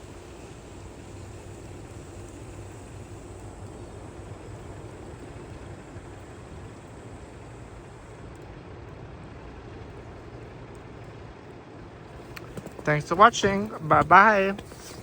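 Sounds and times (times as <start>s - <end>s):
even hiss: 0.0s - 8.4s, 12.2s - 15.0s
low outdoor rumble: 0.0s - 15.0s.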